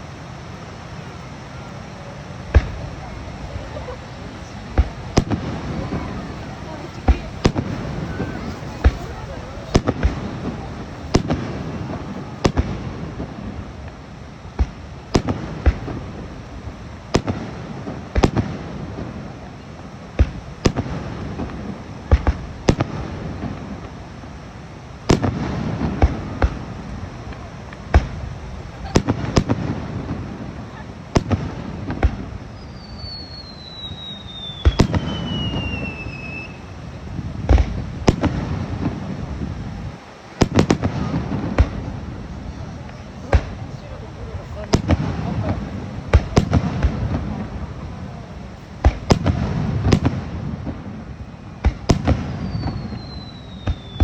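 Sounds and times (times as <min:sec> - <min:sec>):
crowd noise: 0:00.0 - 0:54.0
fireworks bursting with sharp bangs: 0:00.0 - 0:54.0
long falling whistle: 0:32.6 - 0:36.7, 0:52.4 - 0:54.0.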